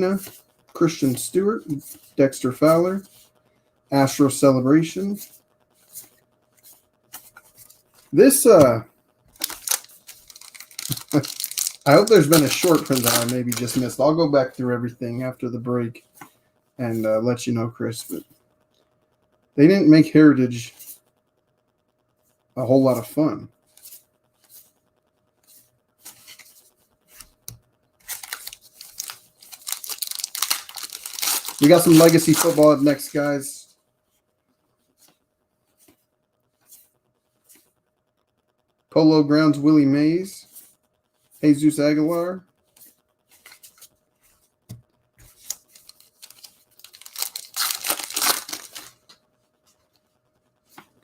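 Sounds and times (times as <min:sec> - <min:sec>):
wrapper crinkling and tearing: 0:09.3 - 0:14.0, 0:28.0 - 0:33.4, 0:45.3 - 0:49.1
wrapper rustling: 0:09.3 - 0:14.1, 0:28.0 - 0:33.5, 0:45.3 - 0:49.1
trading cards clicking: 0:09.4 - 0:13.9.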